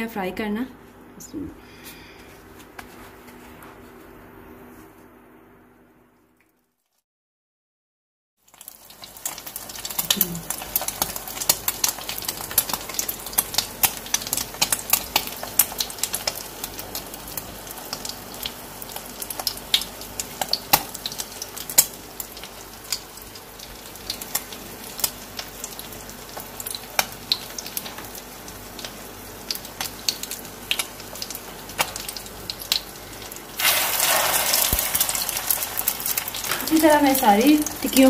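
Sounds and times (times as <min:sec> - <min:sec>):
patty sizzling in a pan: 0:08.4 - 0:38.0.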